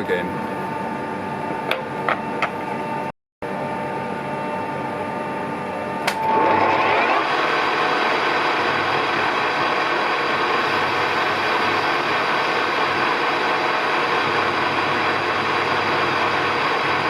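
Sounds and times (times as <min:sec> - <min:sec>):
lathe running hum: 0:00.1 - 0:17.0.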